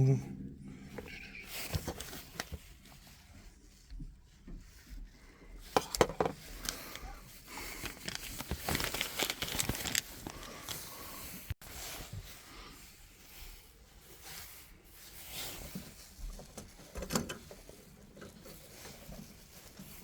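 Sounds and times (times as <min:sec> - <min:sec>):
clicks and knocks of fittings: 0:05.6 - 0:07.1, 0:16.4 - 0:18.6.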